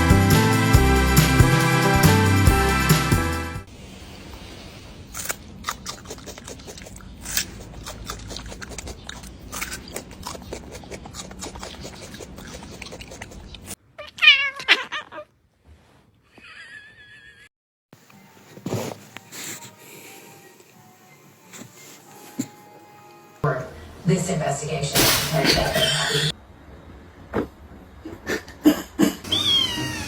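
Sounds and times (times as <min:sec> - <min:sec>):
cat meowing: 0:14.0 - 0:15.3.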